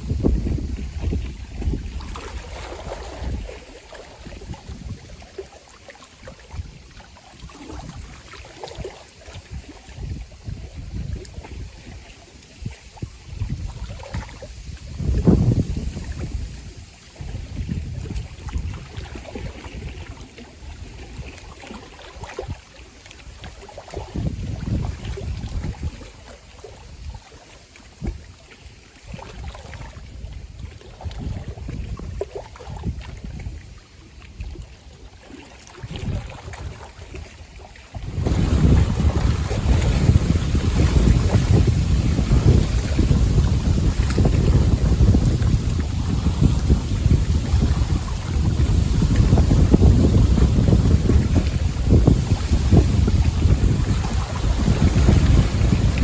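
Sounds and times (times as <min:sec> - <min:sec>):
gusty wind buffeting microphone: 0:00.0 - 0:05.3, 0:09.3 - 0:12.0, 0:12.6 - 0:20.1, 0:24.0 - 0:26.0, 0:29.4 - 0:33.8, 0:35.8 - 0:36.8, 0:37.5 - 0:56.0
water lapping at shore: 0:00.0 - 0:56.0.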